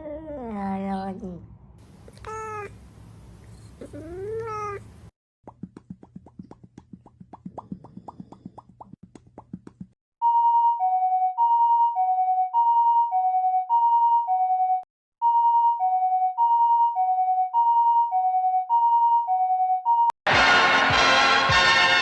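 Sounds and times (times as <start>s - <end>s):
two-tone electronic siren: 10.2s - 20.1s.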